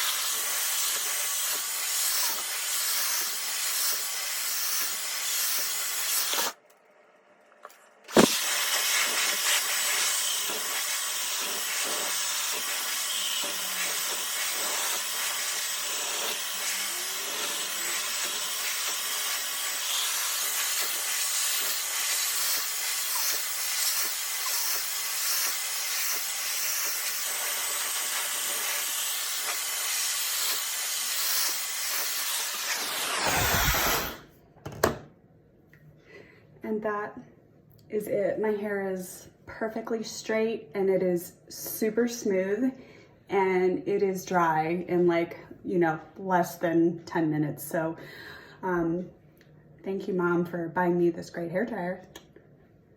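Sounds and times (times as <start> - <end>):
hair dryer blowing air: 0.0 - 6.6, 8.1 - 34.3.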